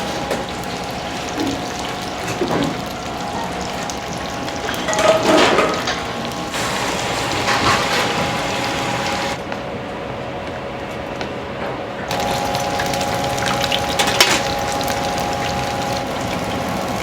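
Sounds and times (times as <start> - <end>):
water running and splashing: 0.0 - 9.4, 12.1 - 17.0
kitchen equipment hum: 0.0 - 9.5, 12.0 - 17.0.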